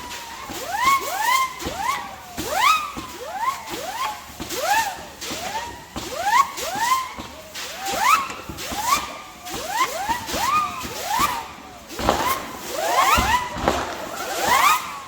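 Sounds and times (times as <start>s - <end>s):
whistling fireworks: 0.0s - 15.0s.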